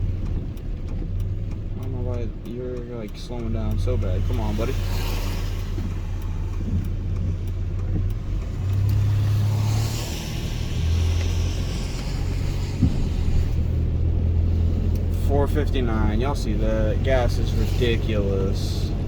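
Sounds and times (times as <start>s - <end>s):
car engine and tyre rumble: 0.0s - 19.0s
tyre hiss on wet road: 4.4s - 6.8s, 8.2s - 15.2s, 17.3s - 19.0s.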